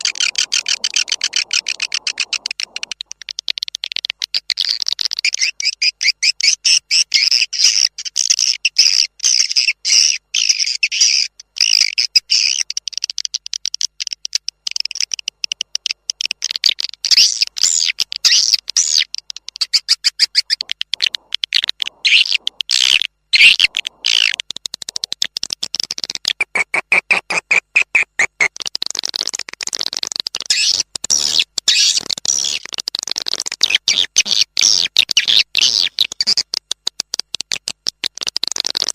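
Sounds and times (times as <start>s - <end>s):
swiftlet twittering chirps: 0.0s - 3.3s, 17.0s - 25.1s.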